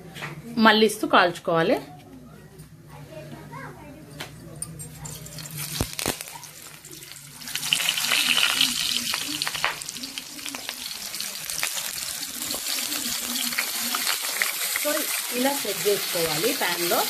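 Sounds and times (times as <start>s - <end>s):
crackles in pan: 4.9s - 17.0s
food sizzling in hot oil: 5.2s - 17.0s.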